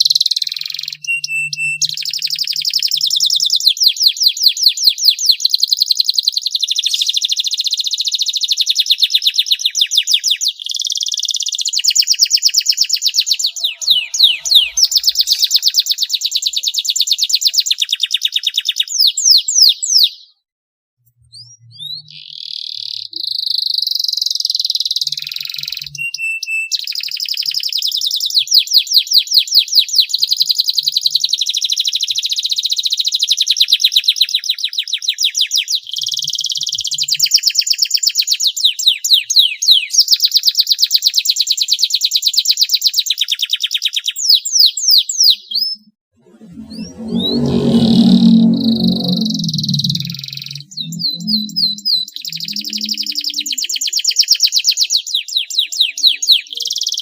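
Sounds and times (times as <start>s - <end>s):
canary singing trills: 0.0s - 3.1s, 13.0s - 16.9s, 45.2s - 54.6s.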